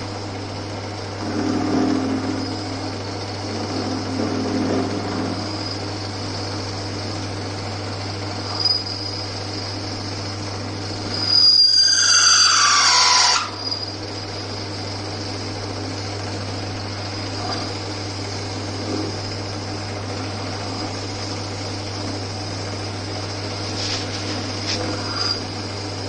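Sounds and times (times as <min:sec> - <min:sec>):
faint high whine: 0:00.0 - 0:26.0
lathe humming: 0:00.0 - 0:26.0
drill bit squealing while cutting: 0:08.5 - 0:14.7, 0:23.4 - 0:25.7.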